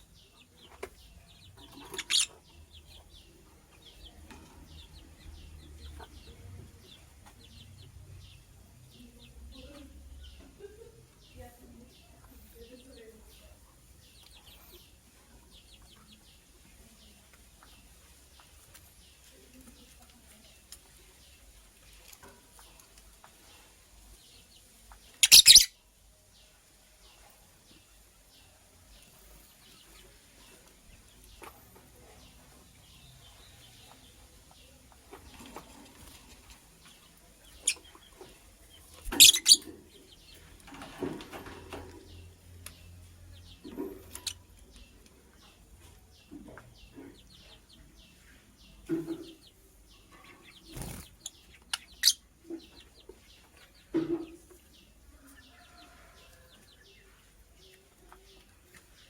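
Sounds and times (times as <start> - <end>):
lovebird chirping: 1.0 - 3.3, 25.1 - 25.9, 38.8 - 40.4, 50.0 - 52.7
lovebird chirps: 25.1 - 25.8, 39.0 - 39.8
wings fluttering: 50.6 - 51.4.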